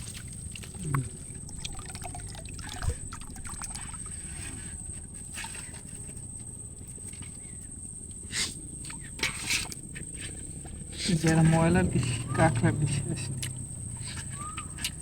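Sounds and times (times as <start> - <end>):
water splashes: 0.0 - 6.2
water trickling and dripping: 0.0 - 6.4.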